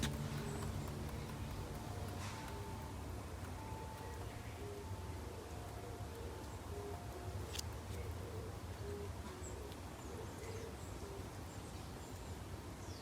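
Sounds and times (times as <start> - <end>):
low steady rumble: 0.0 - 5.5
faint high bird chirps: 0.0 - 11.1.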